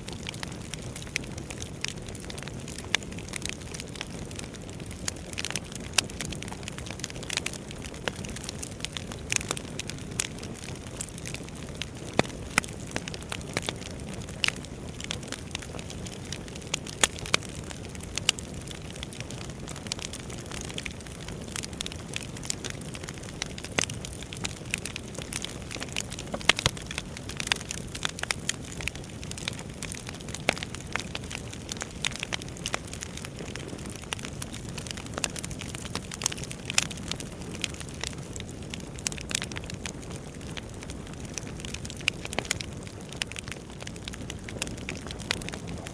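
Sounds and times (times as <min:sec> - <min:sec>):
firewood crackling and popping: 0:00.0 - 0:45.9
wood fire burning: 0:00.0 - 0:45.9.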